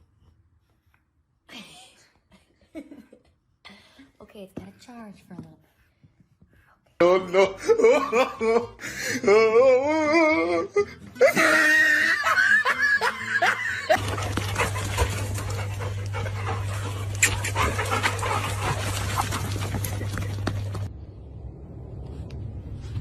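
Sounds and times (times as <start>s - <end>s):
steady low hum: 13.9s - 23.0s.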